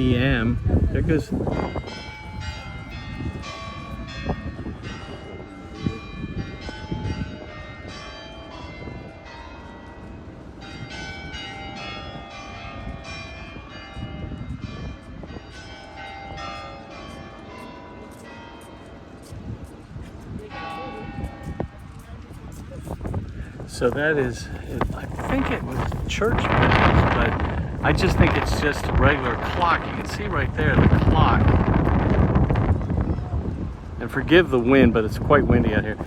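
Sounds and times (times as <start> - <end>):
wind rumble on microphone: 0.0 - 17.6, 19.0 - 36.0
clock tower bells chiming: 1.5 - 19.6, 20.4 - 22.0.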